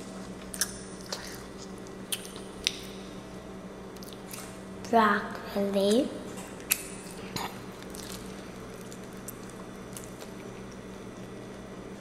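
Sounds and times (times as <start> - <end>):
child chewing: 0.0 - 3.0, 3.9 - 4.6, 6.5 - 11.7.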